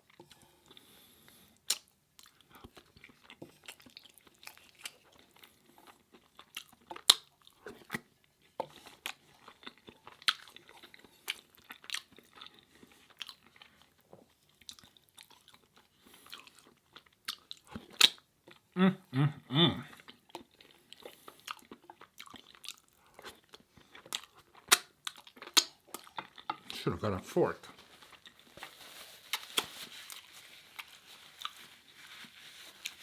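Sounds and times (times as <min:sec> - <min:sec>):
chewing food: 0:00.0 - 0:18.8, 0:19.8 - 0:26.8, 0:27.6 - 0:33.0
mouth clicks and crunches: 0:16.2 - 0:18.2, 0:20.0 - 0:26.8.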